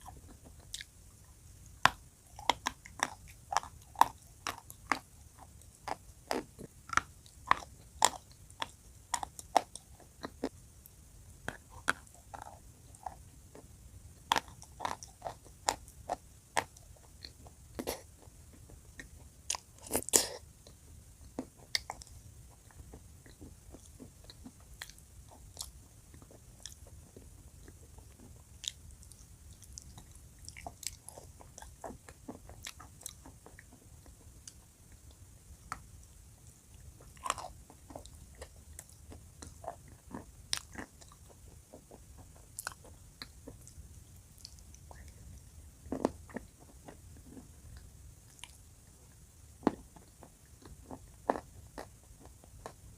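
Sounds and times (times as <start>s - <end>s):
chewing crunchy chalk: 1.8s - 10.6s, 11.4s - 20.4s.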